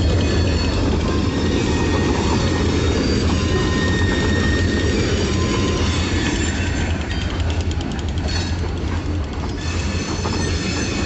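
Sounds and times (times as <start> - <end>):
high wheel squeal: 0.0 - 7.6, 9.4 - 11.0
train wheels rumbling on rails: 0.0 - 11.0.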